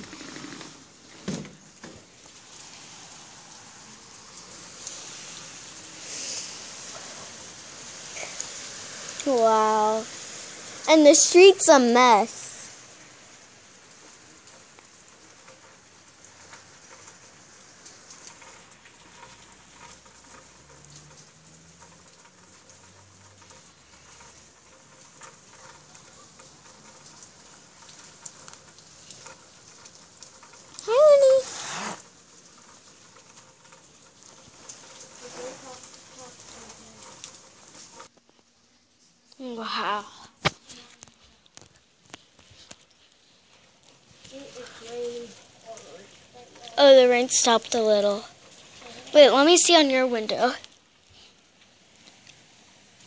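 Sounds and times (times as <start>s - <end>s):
heavy rain pouring: 0.0s - 53.0s.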